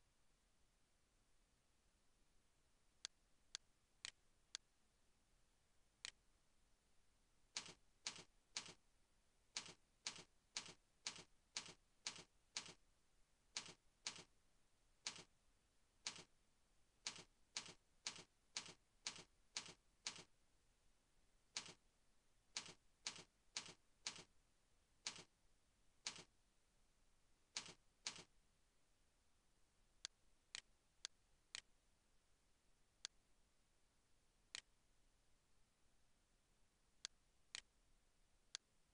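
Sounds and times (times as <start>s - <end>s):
keyboard keystrokes: 7.6s - 8.8s, 15.1s - 15.3s, 16.1s - 16.3s, 17.1s - 20.3s, 22.6s - 24.3s, 25.1s - 25.3s, 27.6s - 28.3s.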